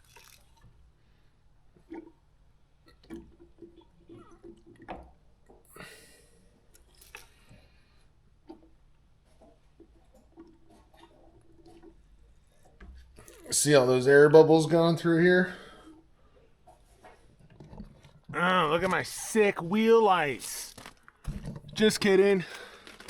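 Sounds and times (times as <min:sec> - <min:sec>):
fluid squishing and gurgling: 0:00.0 - 0:01.0, 0:06.7 - 0:13.6.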